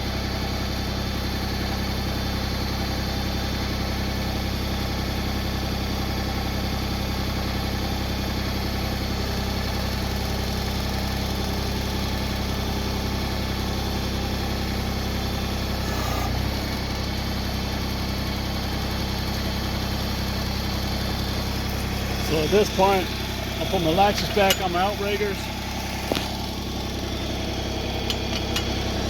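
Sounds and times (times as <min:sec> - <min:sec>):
tractor engine idling: 0:00.0 - 0:29.0.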